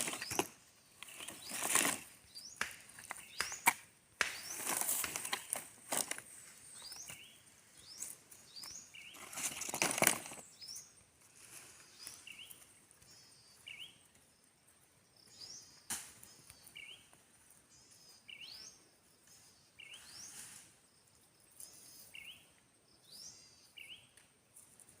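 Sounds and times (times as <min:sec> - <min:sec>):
rustling: 0:00.0 - 0:12.6
birds chirping: 0:00.0 - 0:20.5, 0:21.3 - 0:24.2.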